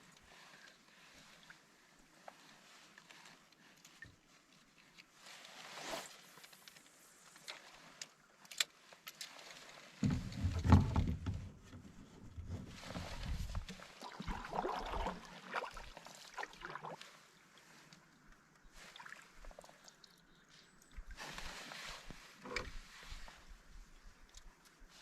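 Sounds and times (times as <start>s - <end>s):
paddling water sounds: 0.0s - 25.0s
knocks and clicks against hull: 10.0s - 14.4s.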